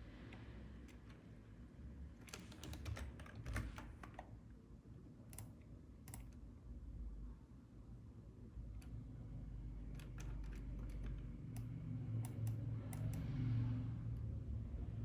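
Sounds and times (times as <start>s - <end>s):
faint low hum: 0.0s - 15.0s
computer keyboard keys clicking: 2.2s - 4.3s, 5.3s - 6.4s, 9.8s - 13.3s.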